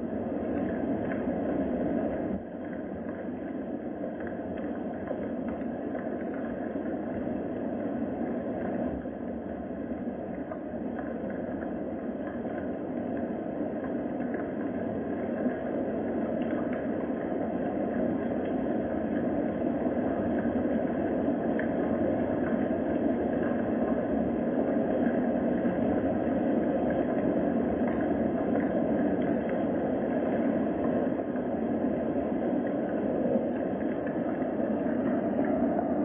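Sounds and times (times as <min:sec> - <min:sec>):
steady rain: 0:00.0 - 0:36.0
faint ticks: 0:02.6 - 0:07.5, 0:08.2 - 0:24.3, 0:24.9 - 0:35.6.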